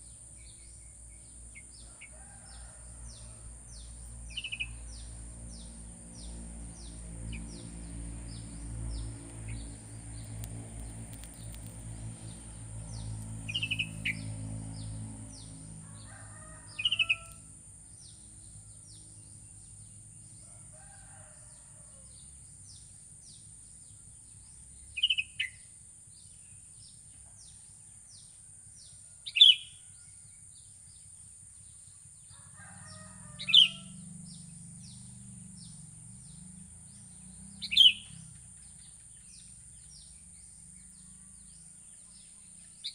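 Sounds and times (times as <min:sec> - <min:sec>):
small birds chirping: 0:03.7 - 0:15.6
low rumble: 0:04.7 - 0:15.8.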